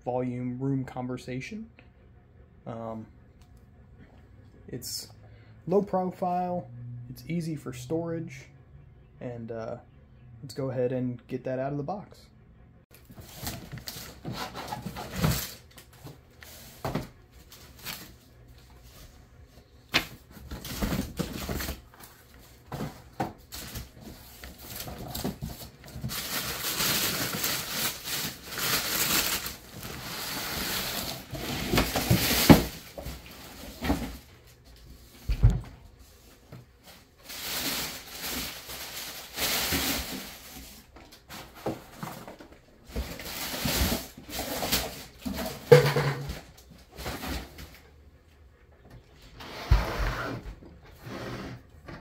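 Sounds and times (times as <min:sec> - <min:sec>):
cardboard and plastic rustling: 0:12.9 - 0:47.9.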